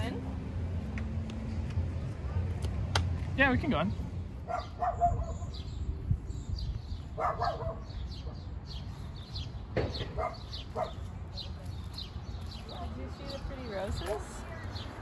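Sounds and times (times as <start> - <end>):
small birds chirping: 3.4 - 15.0.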